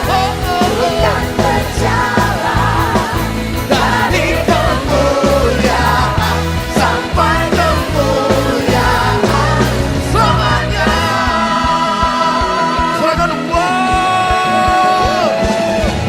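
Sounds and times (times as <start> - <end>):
band with bass and drums: 0.0 - 16.0
people singing worship song: 0.0 - 16.0.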